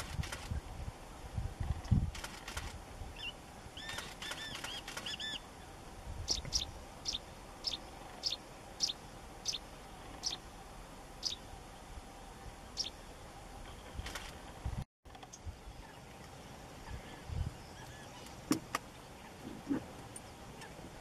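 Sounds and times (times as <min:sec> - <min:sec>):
birds calling: 0:03.2 - 0:10.5, 0:11.1 - 0:11.9, 0:12.6 - 0:14.6.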